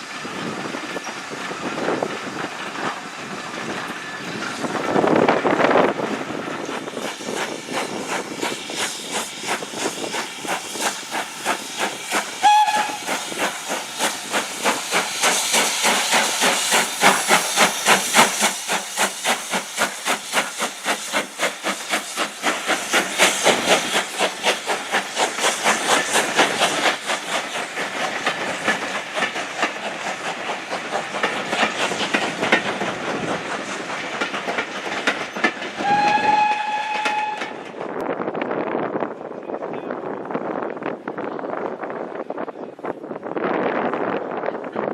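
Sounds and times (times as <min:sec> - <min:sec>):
steam hiss: 0:00.0 - 0:37.9
steam locomotive exhaust beats: 0:00.0 - 0:38.9
train whistle: 0:12.4 - 0:13.1, 0:35.8 - 0:37.6.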